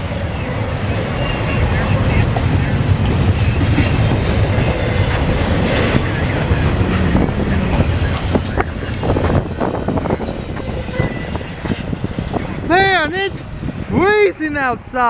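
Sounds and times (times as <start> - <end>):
freight train rumbling past: 0.0 - 15.0
train wheels clacking on rail joints: 0.9 - 12.6.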